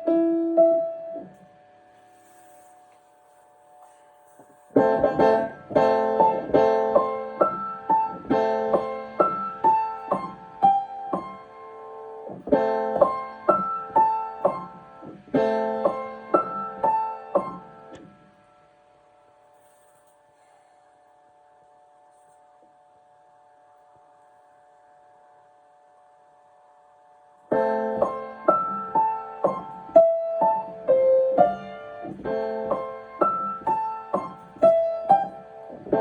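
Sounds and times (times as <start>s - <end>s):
piano chords and melody: 0.0s - 2.7s, 4.6s - 18.4s, 27.5s - 36.0s.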